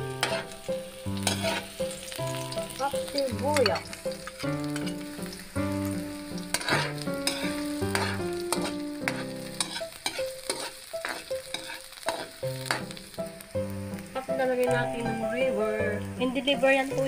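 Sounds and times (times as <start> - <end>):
background music: 0.0 - 17.0
vegetables sizzling in hot oil: 0.0 - 17.0
spatula scraping a wok: 0.1 - 2.5, 6.5 - 13.0.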